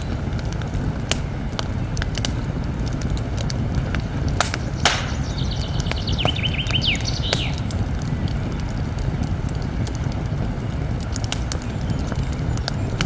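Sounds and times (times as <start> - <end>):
campfire crackling: 0.0 - 13.0
small bird calling: 4.4 - 7.9.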